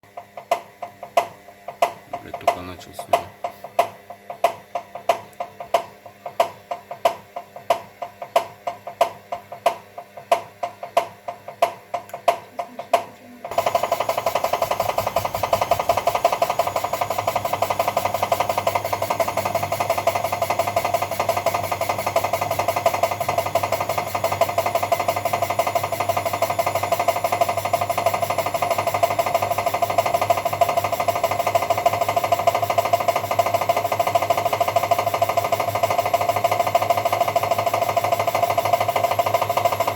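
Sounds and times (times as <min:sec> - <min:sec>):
engine knocking: 0:13.5 - 0:39.9.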